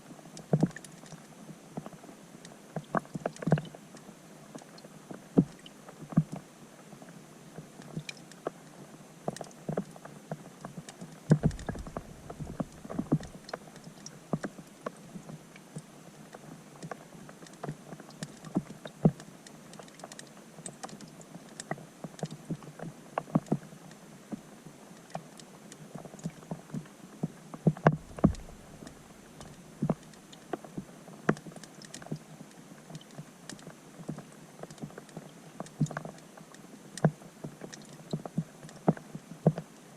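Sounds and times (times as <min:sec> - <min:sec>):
raindrops ticking heard underwater: 0:00.2 - 0:06.4, 0:07.8 - 0:39.7
low rumbles: 0:11.4 - 0:13.4, 0:27.9 - 0:30.1.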